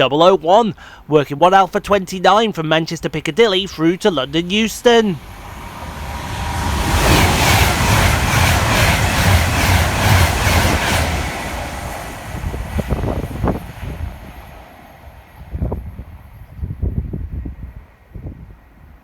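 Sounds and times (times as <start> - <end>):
electric train passing at speed: 2.8 - 19.0
wheels beating over rail joints: 3.7 - 16.0.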